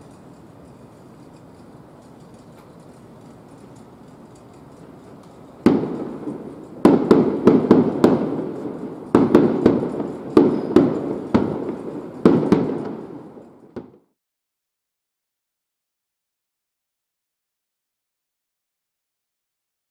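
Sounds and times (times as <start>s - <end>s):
distant fireworks bursting: 0.0s - 14.1s.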